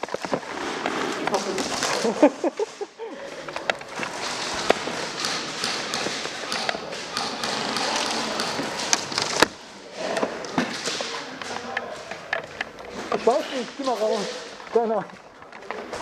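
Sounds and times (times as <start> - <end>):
steady noisy background: 0.0 - 16.0
sharp taps and clicks: 4.6 - 9.5.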